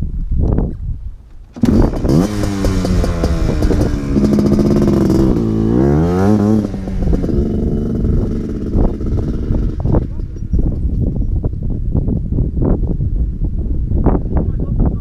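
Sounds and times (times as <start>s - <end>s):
atv engine revving: 1.4s - 11.1s.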